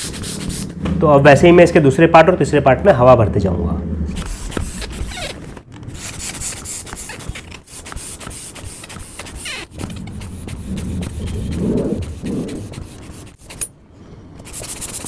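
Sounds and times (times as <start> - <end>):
plastic rubbing: 4.0 - 13.7
hand air pump strokes: 4.2 - 13.7.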